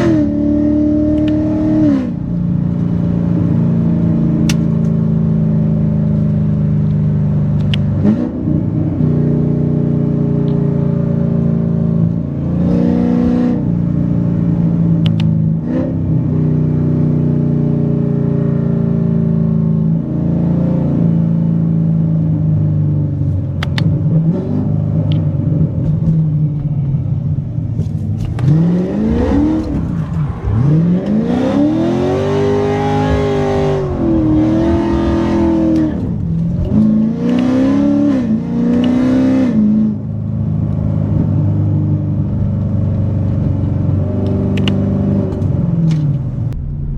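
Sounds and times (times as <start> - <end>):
car engine accelerating hard: 0.0 - 46.9.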